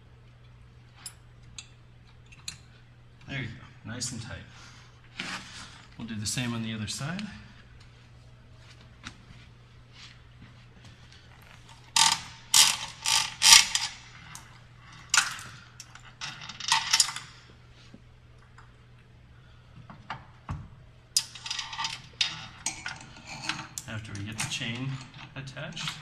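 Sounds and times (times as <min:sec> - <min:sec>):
metal chain rattling and clinking: 0:11.9 - 0:17.4, 0:21.2 - 0:26.0.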